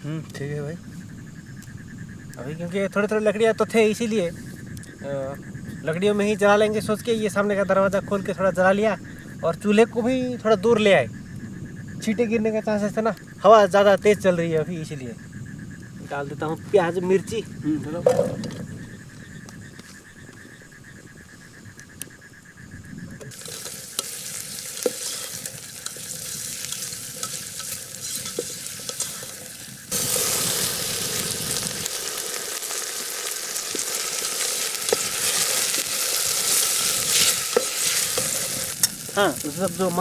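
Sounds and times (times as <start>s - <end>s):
onion sizzling in a pan: 23.3s - 40.0s.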